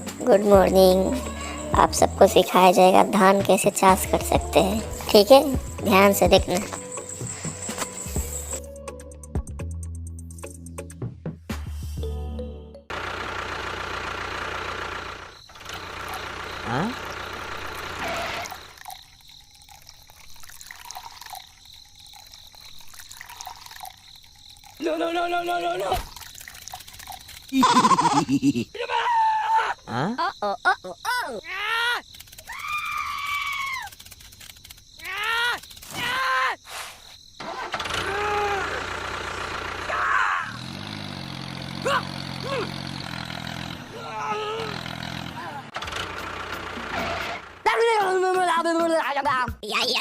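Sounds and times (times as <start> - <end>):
small engine starting and idling: 0.0 - 8.8, 12.9 - 19.0, 25.8 - 28.2, 37.4 - 47.8
high arching calls: 4.1 - 8.6
water dripping: 18.5 - 27.8.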